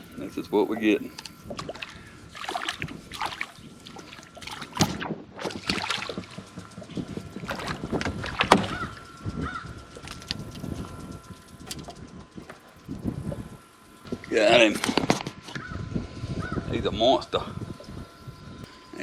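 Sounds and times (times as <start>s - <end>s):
faint steady high tone: 0.0s - 1.5s
fishing gear knocking and clicking: 0.6s - 13.3s.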